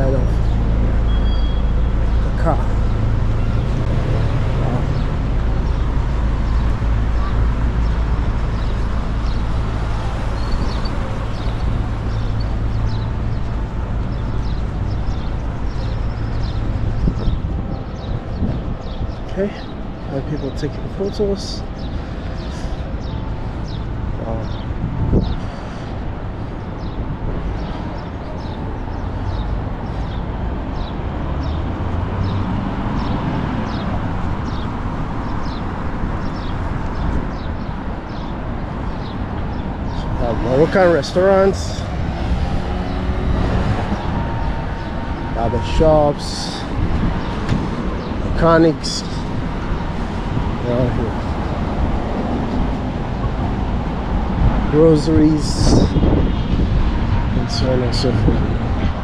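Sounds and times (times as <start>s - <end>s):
road traffic rumble: 0.0s - 59.0s
small birds chirping: 32.2s - 43.2s.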